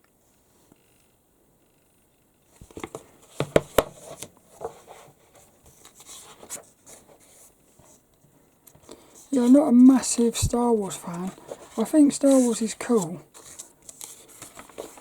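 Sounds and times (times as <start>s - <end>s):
paper rustling: 2.6s - 8.0s, 8.8s - 15.0s.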